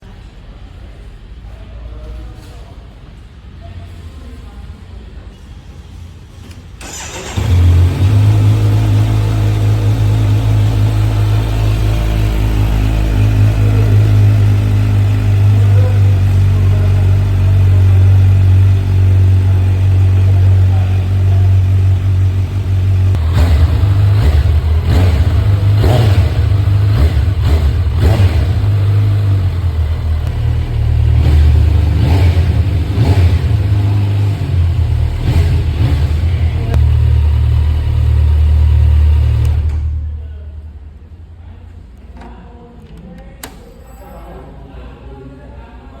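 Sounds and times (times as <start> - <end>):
motorcycle engine revving: 6.8 - 40.1
motorcycle engine idling: 6.9 - 40.1.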